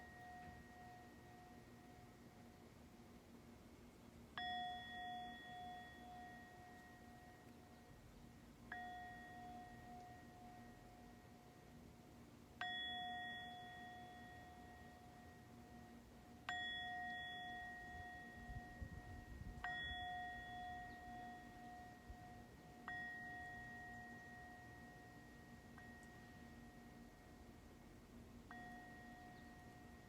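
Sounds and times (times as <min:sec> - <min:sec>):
metal chime ringing: 0:04.4 - 0:11.6, 0:12.6 - 0:27.5, 0:28.4 - 0:30.0.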